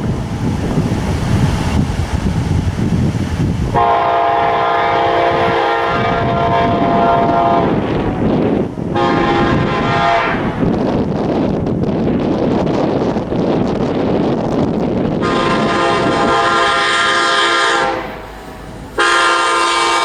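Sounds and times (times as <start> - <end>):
wind buffeting microphone: 0.0 - 20.0
locomotive air horn blasts: 3.7 - 10.6, 15.2 - 20.0.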